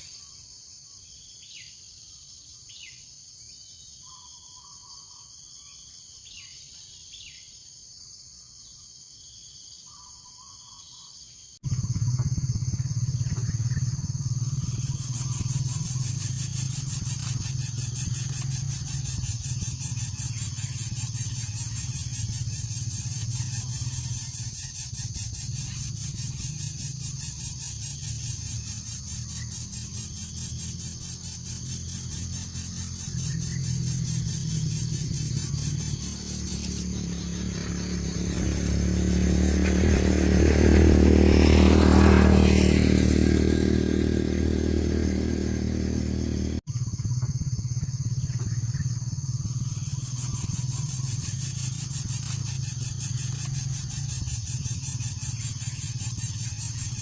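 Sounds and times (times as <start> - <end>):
high insect drone: 0.0 - 57.0
falling bird chirps: 11.7 - 40.2.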